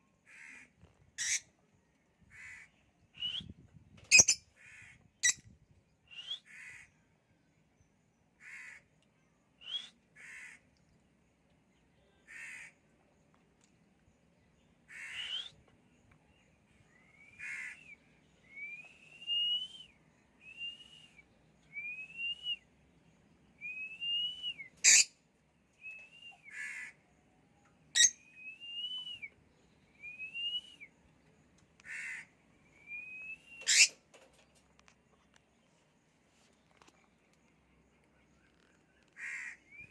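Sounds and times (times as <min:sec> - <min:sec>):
lovebirds whistled calls: 0:03.2 - 0:04.4, 0:06.1 - 0:06.5, 0:09.6 - 0:10.0, 0:15.0 - 0:15.6, 0:23.6 - 0:25.1, 0:27.9 - 0:29.4, 0:32.7 - 0:34.0
bird squawks: 0:14.9 - 0:15.5, 0:17.4 - 0:17.9, 0:24.8 - 0:25.1, 0:26.5 - 0:27.0, 0:31.8 - 0:32.3, 0:33.6 - 0:34.0, 0:39.2 - 0:39.9.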